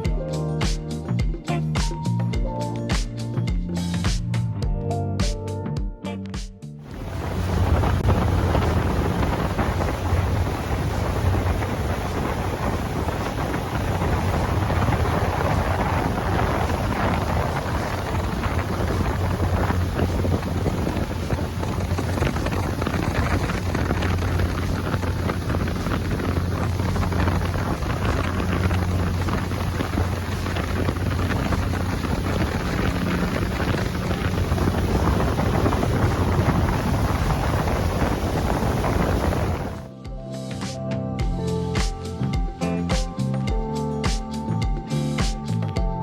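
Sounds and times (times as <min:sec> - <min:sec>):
water: 0:06.8 - 0:39.9
wind buffeting microphone: 0:06.8 - 0:39.9
boat engine droning: 0:06.9 - 0:39.9.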